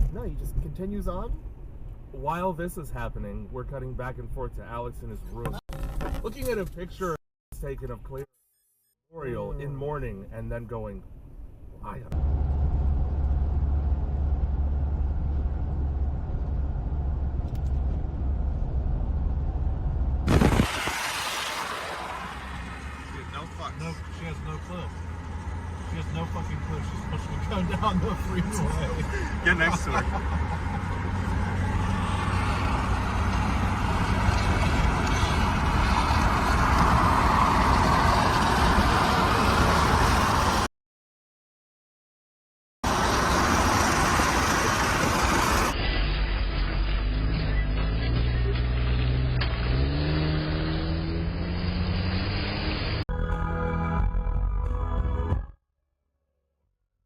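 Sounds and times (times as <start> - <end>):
car engine and road noise: 0.0 - 8.3, 9.2 - 40.7, 42.8 - 55.5
sudden loud burst of noise: 20.2 - 22.8
rushing hiss: 20.3 - 22.4.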